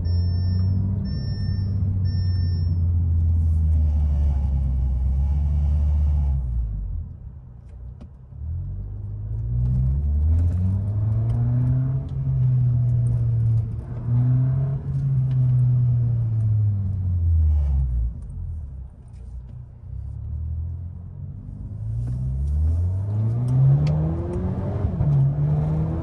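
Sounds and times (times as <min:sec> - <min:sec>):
car engine accelerating: 0:08.4 - 0:18.7, 0:20.0 - 0:26.0.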